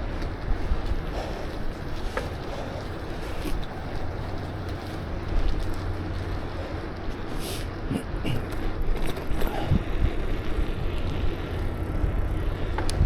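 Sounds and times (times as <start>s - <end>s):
wind buffeting microphone: 0.0s - 13.0s
faint ticks: 12.6s - 13.0s.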